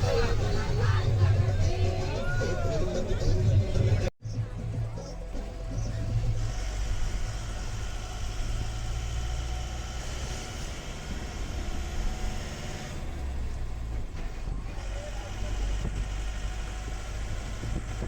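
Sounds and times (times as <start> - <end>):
motor vehicle engine rumbling: 0.0 - 18.0.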